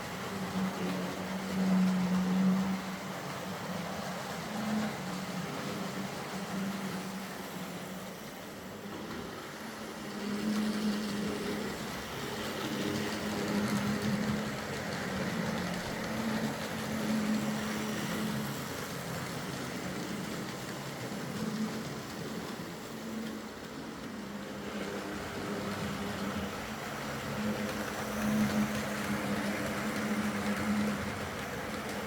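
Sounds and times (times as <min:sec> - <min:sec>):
model train motor humming: 0:00.0 - 0:32.0
wheel and rail noise: 0:00.0 - 0:32.0.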